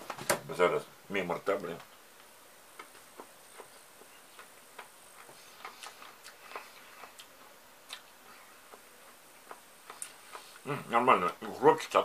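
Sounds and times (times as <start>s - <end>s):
chewing crunchy cucumber: 2.8s - 11.5s.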